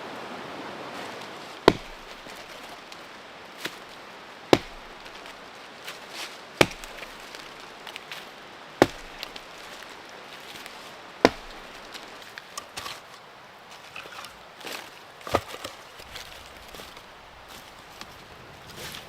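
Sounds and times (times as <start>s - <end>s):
axe chopping firewood: 1.6s - 3.0s, 4.5s - 5.4s, 6.6s - 8.1s, 8.8s - 9.9s, 11.2s - 13.2s, 14.0s - 16.9s.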